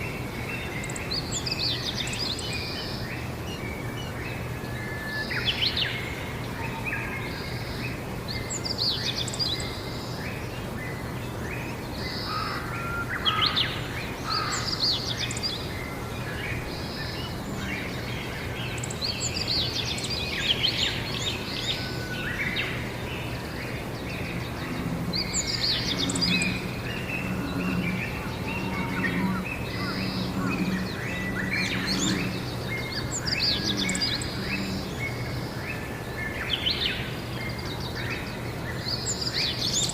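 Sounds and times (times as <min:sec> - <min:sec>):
songbirds singing and chirping: 0:00.0 - 0:39.9
low repeated pulsing: 0:22.8 - 0:35.6.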